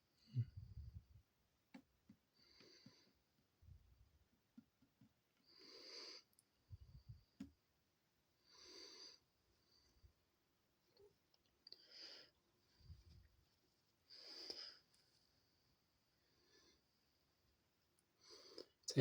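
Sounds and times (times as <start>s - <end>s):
slow breathing close to microphone: 5.4s - 7.4s, 8.4s - 10.2s, 11.7s - 13.3s, 14.1s - 15.3s.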